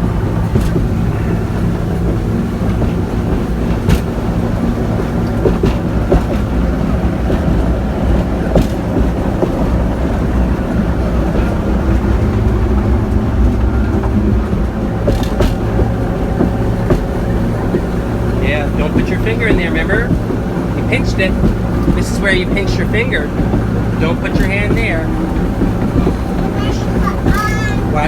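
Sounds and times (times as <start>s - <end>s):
boat engine droning: 0.0s - 28.0s
sharp knocks: 13.8s - 27.9s.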